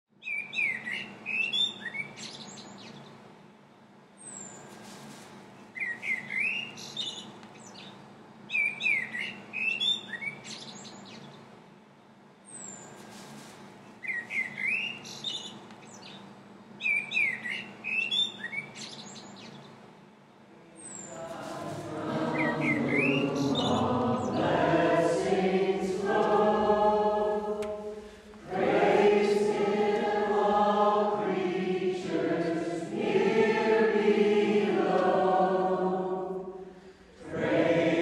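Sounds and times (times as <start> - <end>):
songbird singing: 0.2 - 3.2, 5.7 - 11.4, 13.9 - 19.8, 20.8 - 27.3
steady low hum: 19.6 - 38.0.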